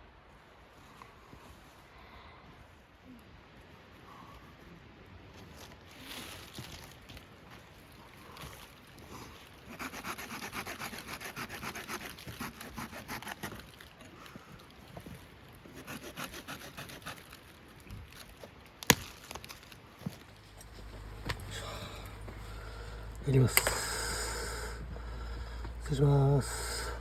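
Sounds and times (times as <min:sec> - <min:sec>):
hand sawing wood: 0:09.7 - 0:13.6, 0:15.7 - 0:17.3, 0:20.5 - 0:27.0.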